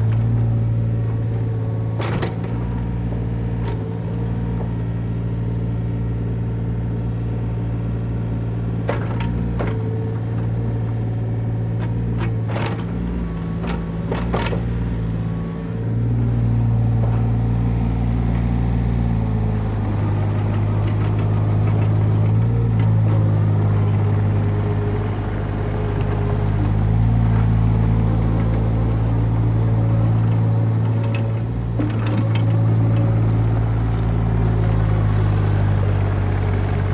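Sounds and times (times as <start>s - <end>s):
excavator diesel engine droning: 0.0s - 36.9s.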